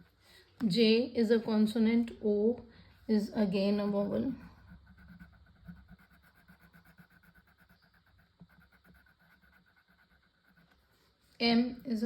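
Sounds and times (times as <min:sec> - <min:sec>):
pencil scratching on paper: 0:03.1 - 0:11.2.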